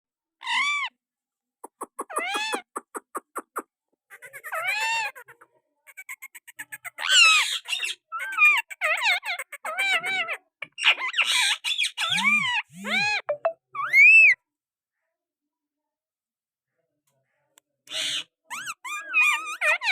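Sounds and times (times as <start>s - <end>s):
parrot chattering squawks: 1.8s - 14.4s, 17.9s - 19.9s
parrot whistle-like calls: 12.0s - 14.4s.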